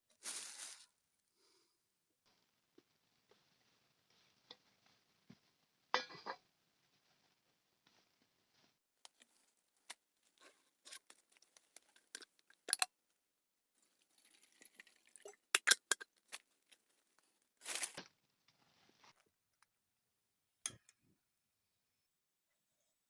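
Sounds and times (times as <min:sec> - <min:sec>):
packaging crinkling and rustling: 0:17.6 - 0:18.1.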